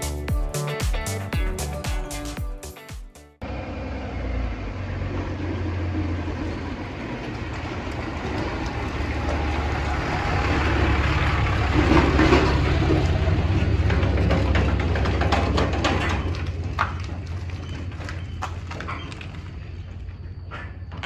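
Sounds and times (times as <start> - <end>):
vehicle engine running: 3.4 - 17.8
rattling clatter: 11.5 - 17.3.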